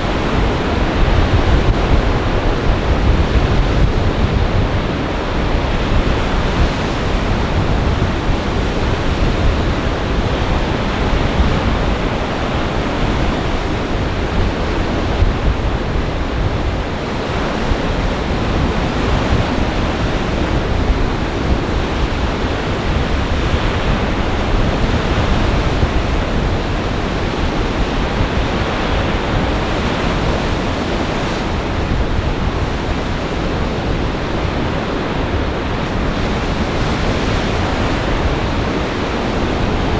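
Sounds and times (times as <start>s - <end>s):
waves breaking: 0.0s - 39.9s
wind rumbling on microphone: 0.0s - 39.9s.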